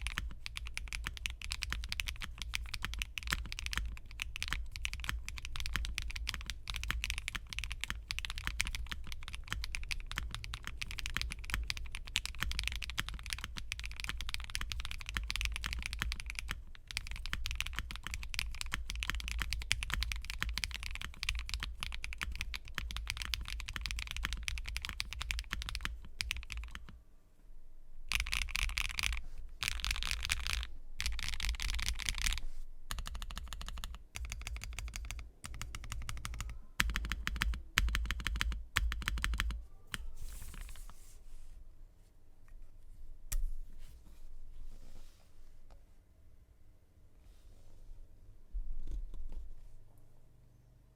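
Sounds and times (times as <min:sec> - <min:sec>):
mechanical keyboard typing: 0:00.0 - 0:26.9, 0:28.1 - 0:40.8.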